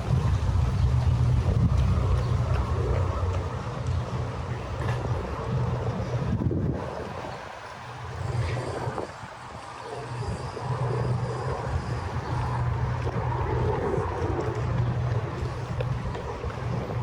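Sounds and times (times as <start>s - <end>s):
low engine hum: 0.0s - 17.0s
wind on microphone: 0.0s - 17.0s.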